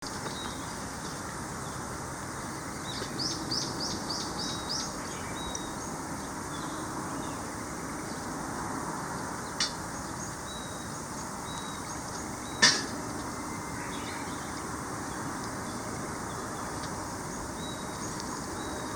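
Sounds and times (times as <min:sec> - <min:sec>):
steady outdoor hiss: 0:00.0 - 0:18.9
birds chirping and singing: 0:09.5 - 0:18.9.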